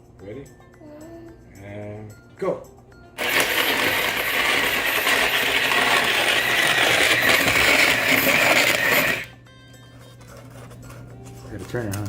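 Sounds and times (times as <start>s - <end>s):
ice shaver grinding rattle: 3.2s - 9.3s.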